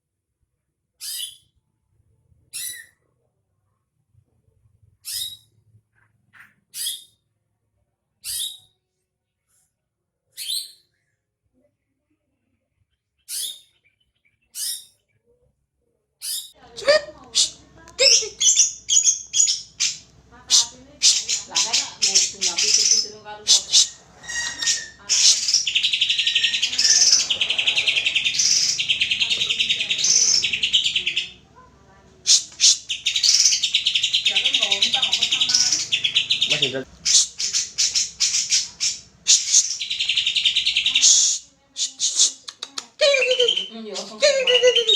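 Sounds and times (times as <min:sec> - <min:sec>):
bird giving sharp high calls: 0:17.3 - 0:31.4, 0:32.2 - 0:42.4.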